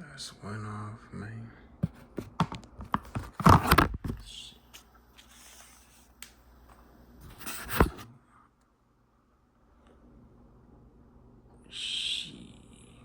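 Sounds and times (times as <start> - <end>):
packaging rustling and scraping: 1.8 - 4.2.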